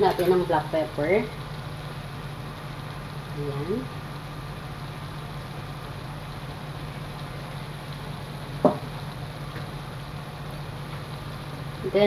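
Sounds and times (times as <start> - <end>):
food sizzling in a metal pot: 0.0 - 12.0.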